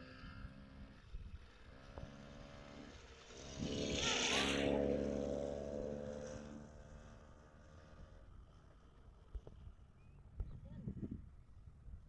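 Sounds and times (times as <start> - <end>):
vehicle engine passing by: 0.0 - 8.1.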